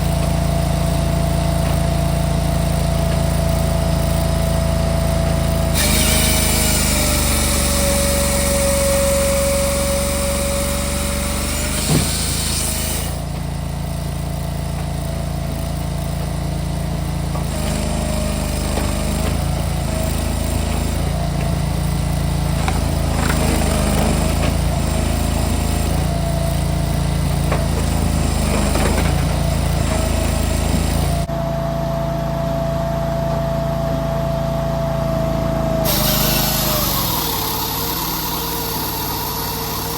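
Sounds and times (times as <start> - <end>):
firewood machine engine running: 0.0 - 31.6, 32.2 - 39.9
machine whine: 35.8 - 39.9.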